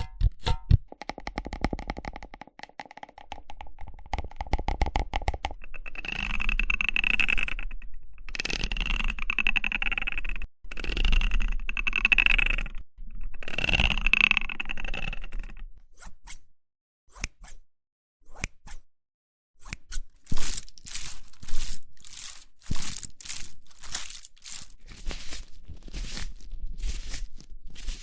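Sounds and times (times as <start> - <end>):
zipper being drawn: 19.6 - 28.0.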